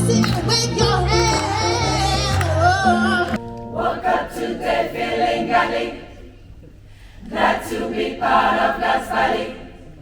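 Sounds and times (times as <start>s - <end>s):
bass and accompaniment: 0.0s - 4.0s
women's choir singing: 0.0s - 6.4s, 7.2s - 10.0s.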